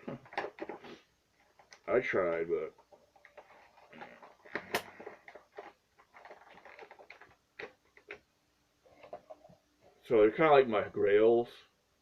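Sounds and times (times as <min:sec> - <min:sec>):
vinyl figure and box clicking: 0:00.1 - 0:00.8, 0:01.4 - 0:08.3.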